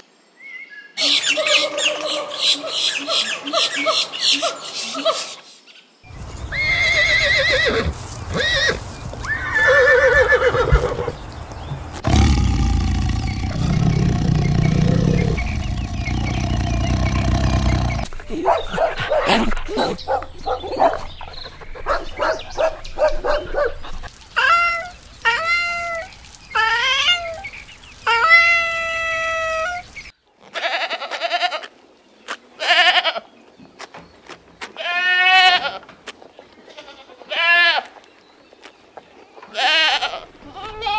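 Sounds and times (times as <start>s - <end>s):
animal calls: 1.0s - 5.5s, 12.0s - 30.0s
goats bleating: 39.5s - 40.9s.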